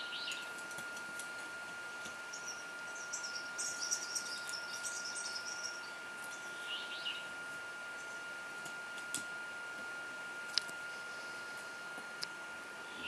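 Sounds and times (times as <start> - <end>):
small bird twittering: 0.0 - 0.5, 2.3 - 7.3
faint high whine: 0.0 - 13.0.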